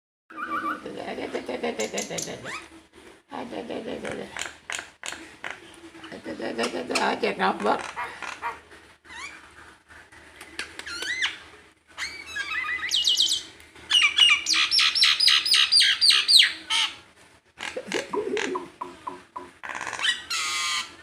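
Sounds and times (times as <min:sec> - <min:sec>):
pet bird whistling: 0:12.0 - 0:16.5.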